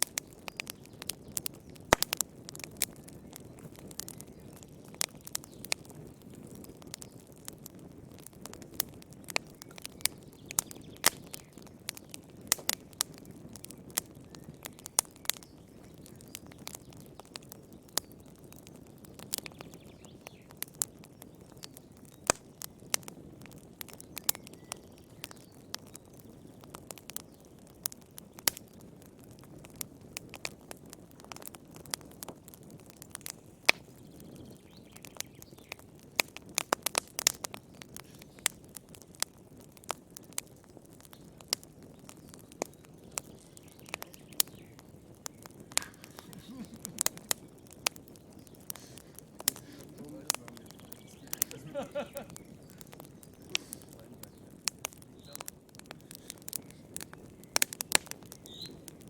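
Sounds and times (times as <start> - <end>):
wood fire crackling and popping: 0.0 - 59.0
soft rush of flame: 26.7 - 59.0.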